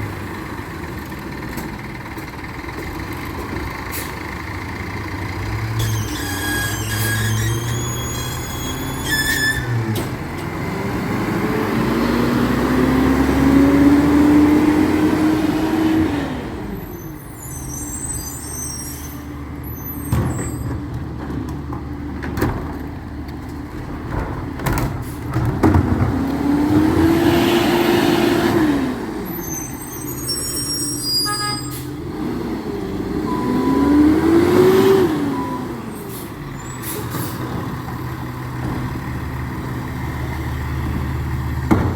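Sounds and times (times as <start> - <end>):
truck engine revving: 5.2 - 16.9, 25.6 - 30.2, 31.9 - 41.9
bangs and rattling clatter: 20.1 - 26.2, 40.8 - 41.9.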